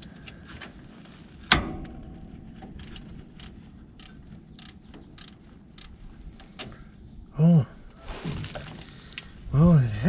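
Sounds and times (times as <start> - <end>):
small clicks and scrapes of tools: 2.7 - 6.8.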